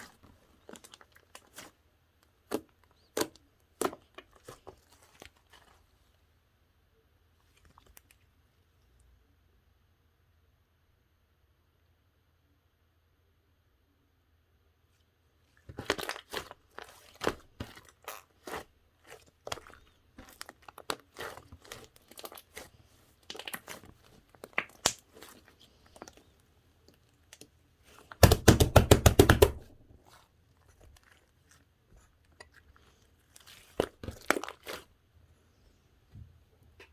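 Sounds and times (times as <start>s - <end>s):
slime crackling and popping: 15.8s - 26.2s.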